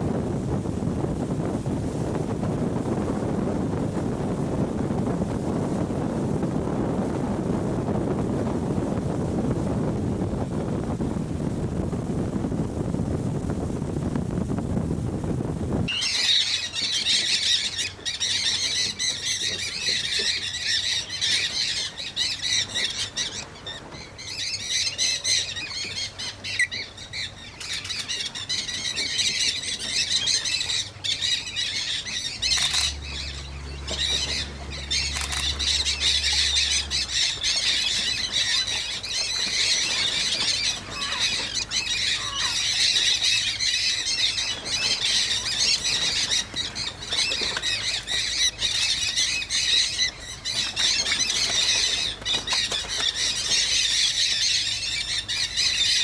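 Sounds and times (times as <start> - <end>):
low steady hum: 0.0 - 56.0
parrots squawking: 24.3 - 56.0.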